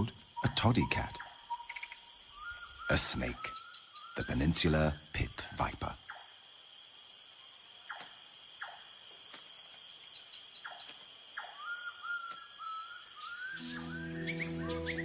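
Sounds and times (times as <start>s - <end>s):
cricket drone: 0.0s - 15.0s
held whistle-like tone: 13.4s - 15.0s.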